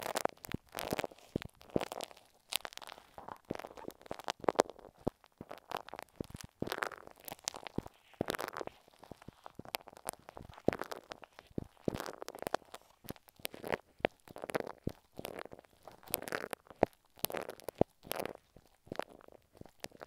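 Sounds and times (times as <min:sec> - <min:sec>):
glue stick squelching on microphone: 0:01.3 - 0:04.6.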